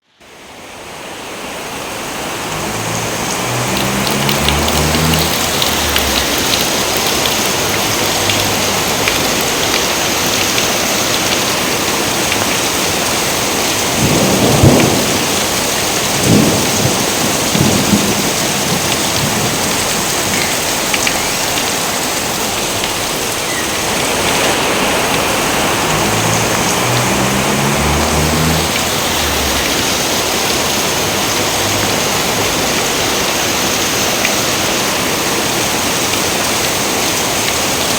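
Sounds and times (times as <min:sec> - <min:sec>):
heavy rain falling: 0:00.0 - 0:37.9
thunder rumbling: 0:02.2 - 0:09.8, 0:13.5 - 0:21.6, 0:23.7 - 0:32.6.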